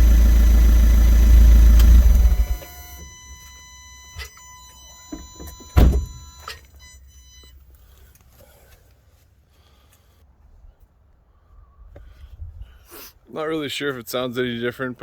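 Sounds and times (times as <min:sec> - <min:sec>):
faint high whine: 0:00.0 - 0:07.6
car door thunk: 0:05.1 - 0:06.2.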